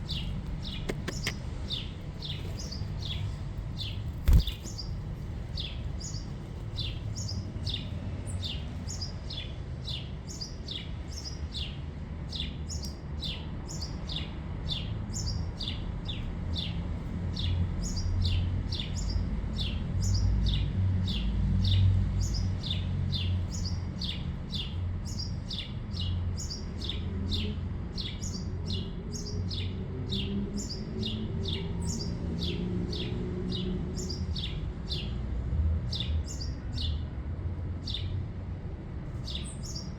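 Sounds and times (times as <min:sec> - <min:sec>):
small bird chirping: 0:00.0 - 0:09.1.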